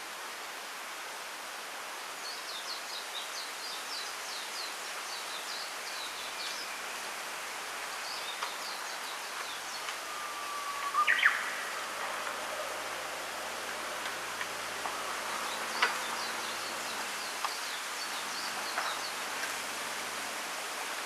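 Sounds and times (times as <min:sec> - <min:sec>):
bamboo rustling in wind: 0:00.0 - 0:21.0
small birds chirping: 0:07.9 - 0:13.0.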